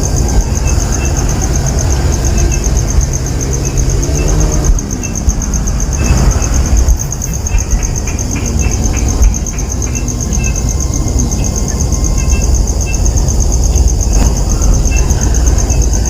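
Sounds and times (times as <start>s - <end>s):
insects chirping: 0.0s - 16.0s
wind buffeting microphone: 0.0s - 16.0s.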